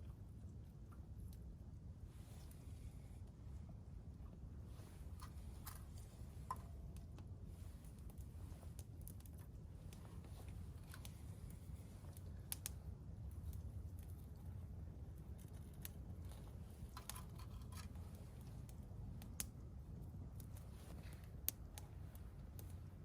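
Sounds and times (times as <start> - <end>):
campfire crackling: 0.0 - 23.0
faint low rumble: 0.0 - 23.0.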